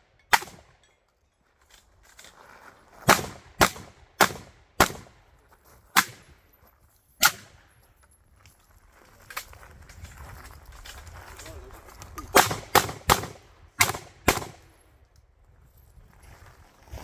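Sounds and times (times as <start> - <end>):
shotgun shots: 0.3 - 0.7, 3.1 - 5.2, 6.0 - 6.3, 7.2 - 7.6, 12.3 - 14.7.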